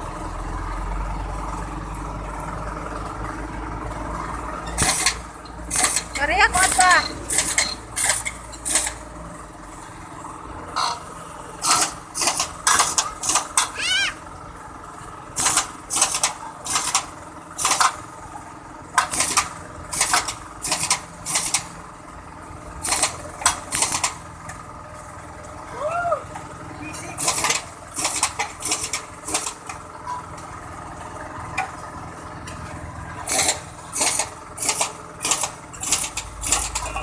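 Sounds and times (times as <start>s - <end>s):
pneumatic air tool bursts: 4.7s - 9.0s, 11.6s - 13.8s, 15.4s - 18.0s, 19.0s - 21.7s, 22.8s - 24.2s, 27.2s - 29.6s, 33.2s - 36.9s.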